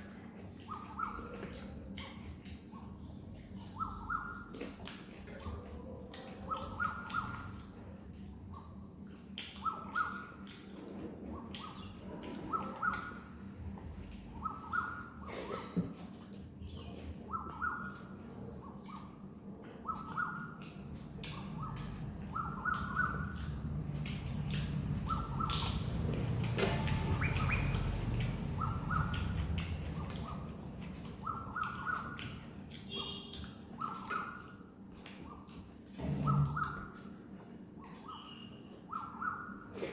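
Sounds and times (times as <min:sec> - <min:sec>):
chewing and mouth clicks: 0:00.4 - 0:13.1, 0:15.3 - 0:38.4
bird calling: 0:03.6 - 0:04.6, 0:06.2 - 0:07.7, 0:09.5 - 0:10.6, 0:11.3 - 0:13.4, 0:14.0 - 0:15.8, 0:16.7 - 0:34.6, 0:35.2 - 0:37.1, 0:37.8 - 0:39.8.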